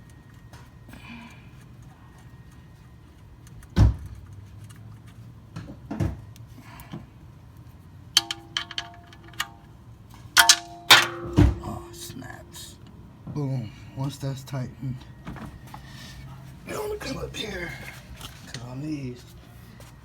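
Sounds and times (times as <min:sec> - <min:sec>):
metal hand tools clanking: 0:08.2 - 0:09.6, 0:10.4 - 0:12.7
sharp ringing metal clinks: 0:08.2 - 0:09.6, 0:10.4 - 0:12.7.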